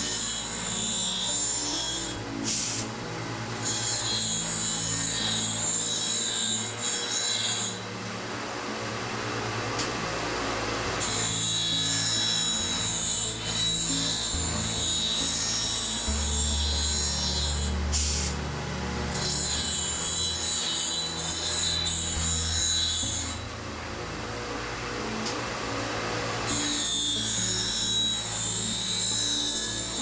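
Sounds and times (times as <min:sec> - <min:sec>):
grinding stone hissing on blades: 0:00.0 - 0:02.9, 0:11.0 - 0:18.4.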